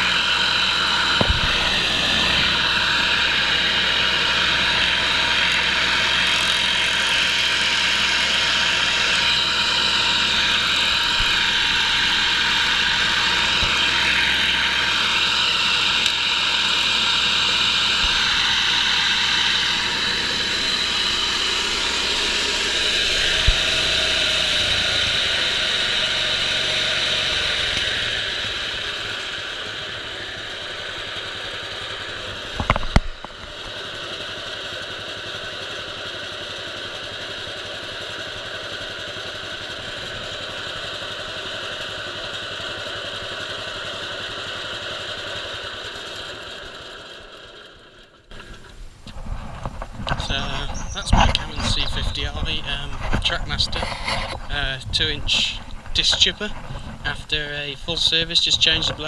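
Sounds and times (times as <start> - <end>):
wood chipper running: 0.0 - 59.0
sharp knock: 1.2 - 1.9.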